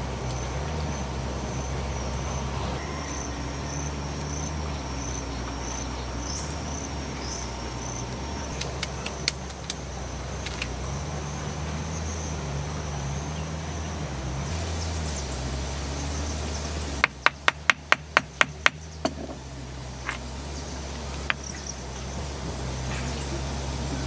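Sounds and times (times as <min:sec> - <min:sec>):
low background hum: 0:00.0 - 0:24.0
sharp knocks: 0:17.0 - 0:19.4.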